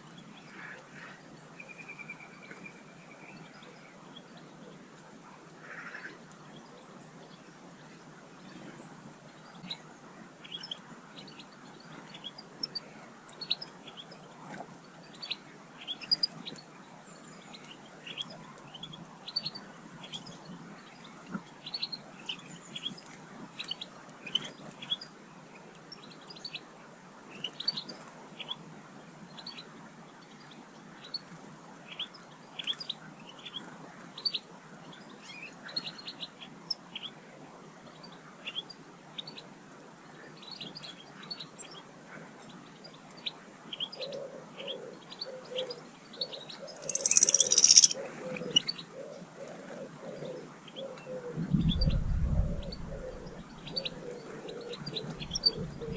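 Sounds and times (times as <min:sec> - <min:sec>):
faint background noise: 0:00.0 - 0:55.9
small birds chirping: 0:40.2 - 0:49.1, 0:52.6 - 0:55.9.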